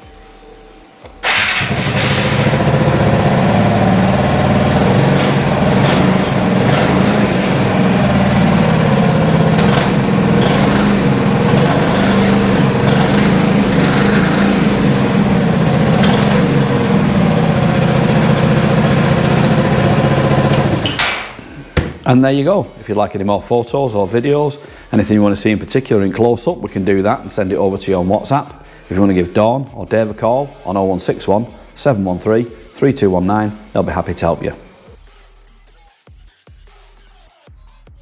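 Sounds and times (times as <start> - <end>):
scooter engine idling: 1.2 - 22.1
scooter engine starting: 1.2 - 22.2.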